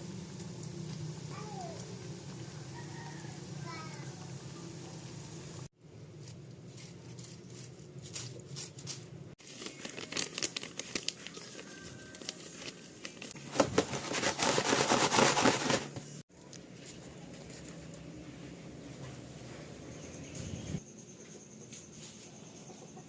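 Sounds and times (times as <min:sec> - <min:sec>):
plastic crinkling and rustling: 0:06.2 - 0:17.8.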